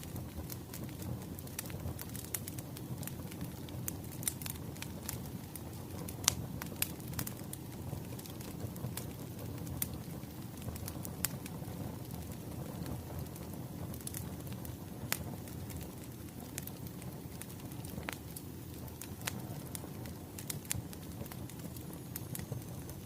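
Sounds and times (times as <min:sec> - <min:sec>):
low rumble of burning logs: 0:00.0 - 0:23.0
wood fire crackling and popping: 0:00.0 - 0:23.0.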